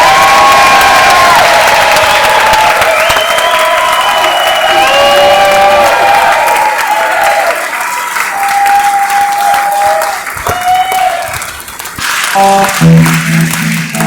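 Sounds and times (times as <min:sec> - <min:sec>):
crowd calling out: 0:00.0 - 0:11.6
audience applauding: 0:00.0 - 0:14.0
band playing low notes: 0:12.1 - 0:14.0.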